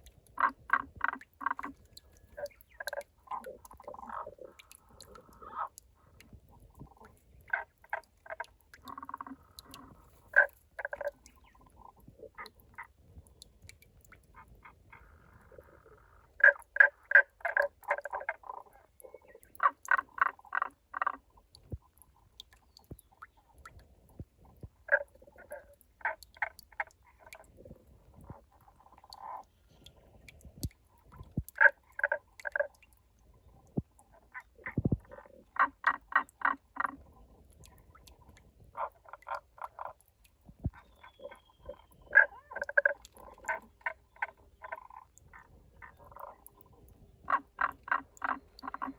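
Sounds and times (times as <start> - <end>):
frog croaking: 0.3 - 5.8, 6.8 - 13.0, 14.3 - 21.5, 24.8 - 27.5, 28.1 - 29.5, 31.3 - 32.9, 33.7 - 37.1, 38.7 - 40.0, 40.6 - 48.9.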